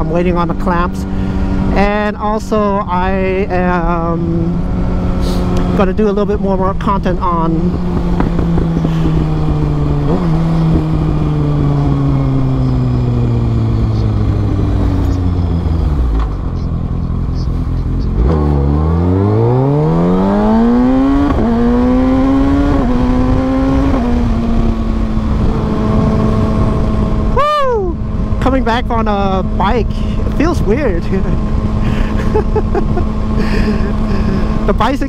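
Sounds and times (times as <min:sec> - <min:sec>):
motorcycle engine revving: 0:00.0 - 0:35.0
wind rushing: 0:07.5 - 0:16.1, 0:18.9 - 0:28.5.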